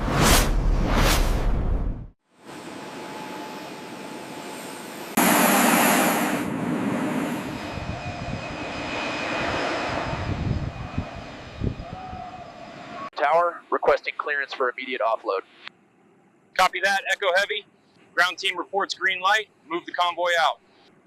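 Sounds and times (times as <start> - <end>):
jet engines rushing: 2.5 - 13.1.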